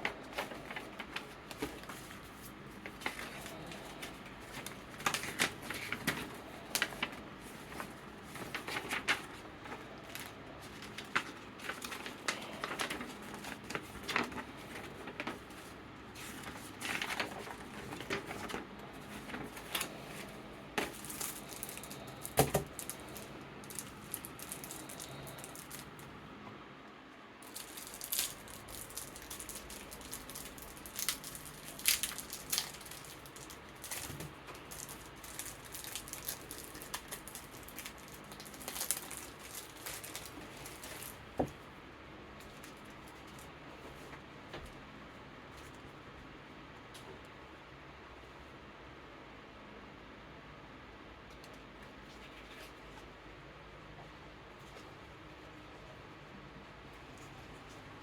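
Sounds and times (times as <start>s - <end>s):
cards and sleeves rustling: 0.0s - 26.2s, 27.4s - 41.6s
electric fan humming: 0.0s - 58.0s.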